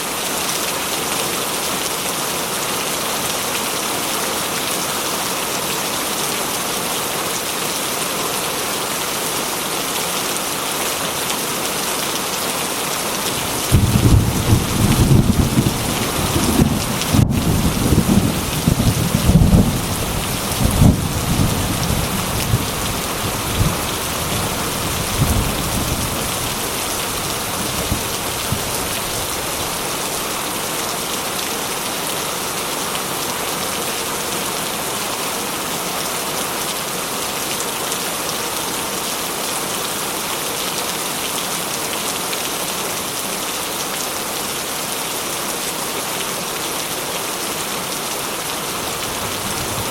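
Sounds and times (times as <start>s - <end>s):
heavy rain on a metal roof: 0.0s - 49.9s
thunder rumbling and cracking: 13.4s - 26.5s.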